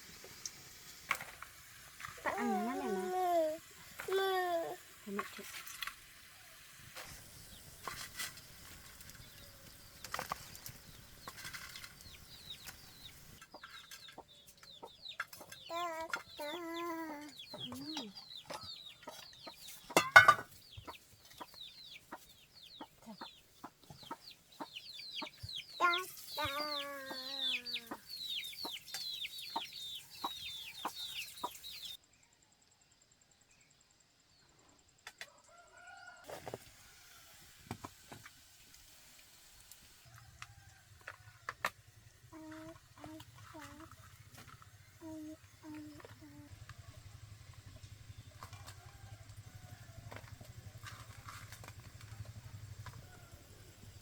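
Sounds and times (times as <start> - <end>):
chickens peeping: 9.1 - 32.0
chicken wavering calls: 20.8 - 32.0.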